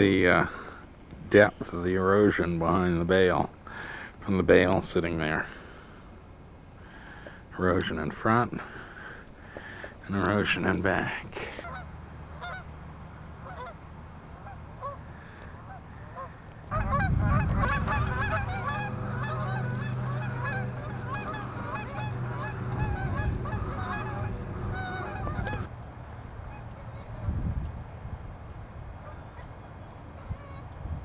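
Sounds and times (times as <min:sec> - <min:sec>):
low steady rumble: 0:01.1 - 0:31.0
geese honking: 0:09.6 - 0:25.7, 0:26.4 - 0:27.4, 0:29.0 - 0:29.5, 0:30.2 - 0:30.8.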